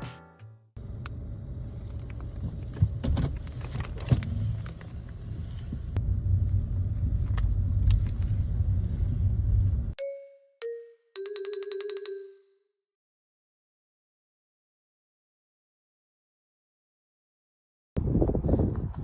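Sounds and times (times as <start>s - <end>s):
vehicle rumbling in motion: 0.8s - 10.0s.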